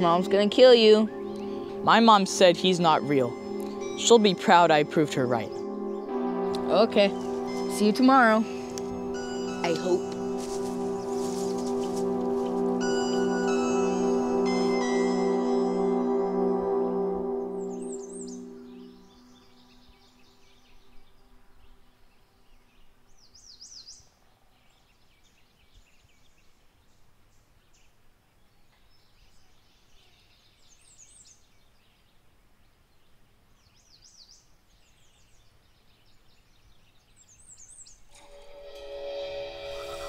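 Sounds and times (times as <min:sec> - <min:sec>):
music: 0:00.0 - 0:19.6, 0:38.2 - 0:40.0
birds chirping: 0:00.0 - 0:26.4.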